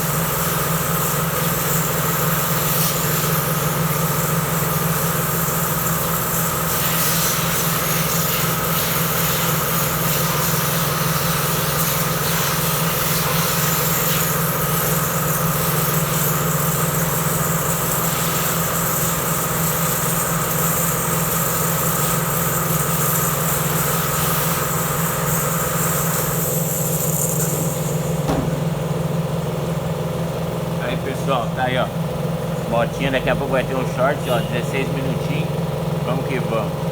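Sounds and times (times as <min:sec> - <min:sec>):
motor humming: 0:24.7 - 0:36.9.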